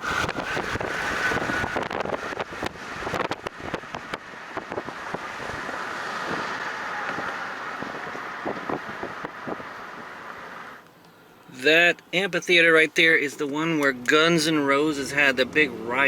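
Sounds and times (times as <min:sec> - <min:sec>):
tyre and wind noise: 0:00.0 - 0:10.8.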